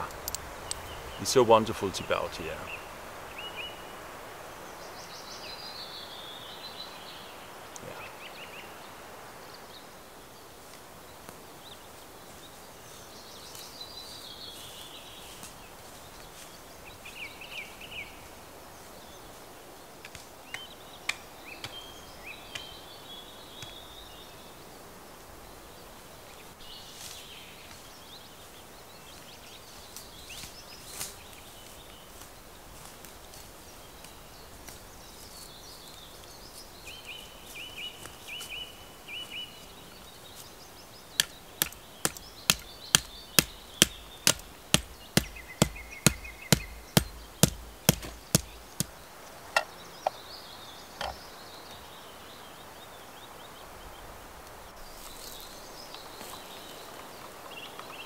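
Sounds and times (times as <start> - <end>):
breeze in the trees: 0.0 - 58.0
songbirds singing: 0.0 - 58.0
footsteps on forest floor: 26.8 - 40.6, 41.2 - 49.0.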